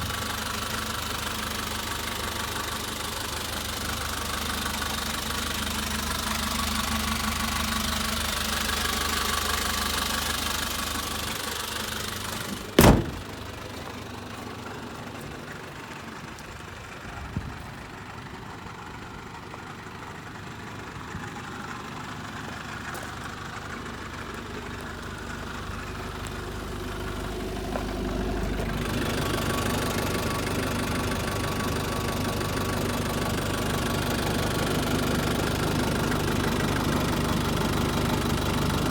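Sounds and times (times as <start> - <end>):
diesel engine idling: 0.0 - 38.9
loud sharp bang: 12.8 - 13.3.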